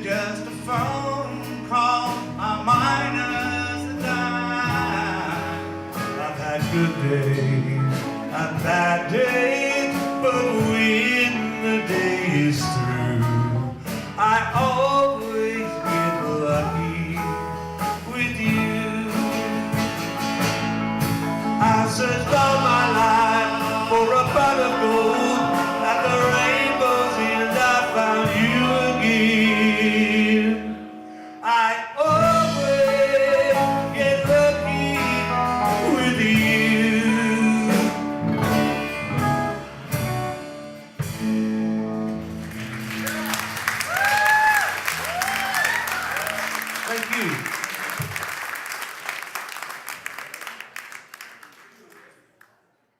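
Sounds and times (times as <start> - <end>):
person singing: 0.0 - 20.0, 21.6 - 38.2
guitars: 0.0 - 47.4
country band playing: 0.0 - 50.8.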